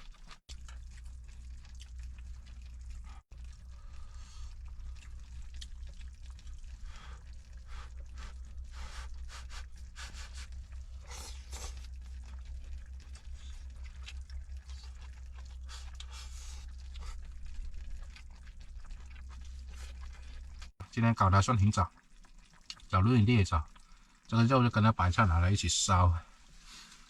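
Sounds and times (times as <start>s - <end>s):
steady low rumble: 0.5s - 20.7s.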